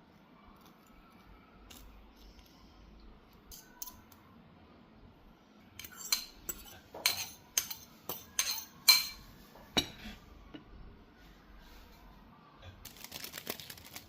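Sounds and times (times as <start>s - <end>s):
cutlery clinking against a dish: 5.8s - 10.2s.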